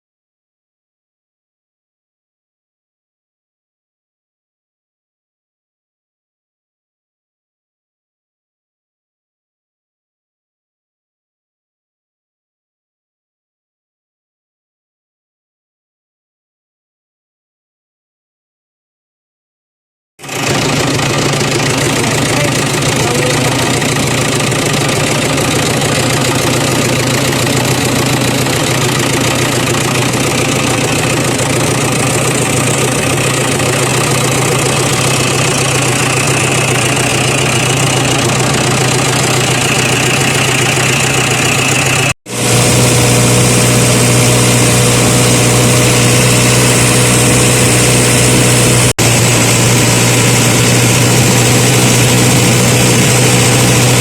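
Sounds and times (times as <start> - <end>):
engine running steadily: 20.2 - 54.0.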